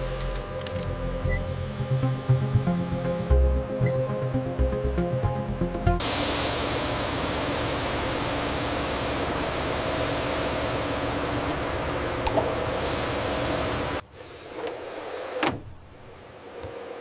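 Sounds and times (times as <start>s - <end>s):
steady hiss: 6.0s - 17.0s.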